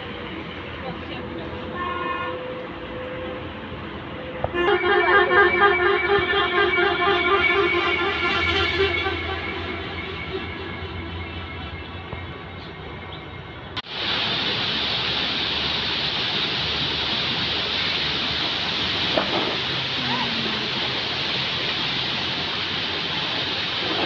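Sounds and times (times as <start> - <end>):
background music: 4.4 - 12.2
river water rushing: 13.8 - 24.0.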